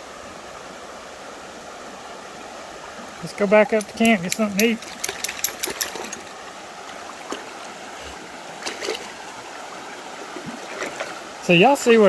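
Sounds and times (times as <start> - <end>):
creek water flowing over rocks: 0.0 - 12.0
person wading through water: 2.9 - 12.0.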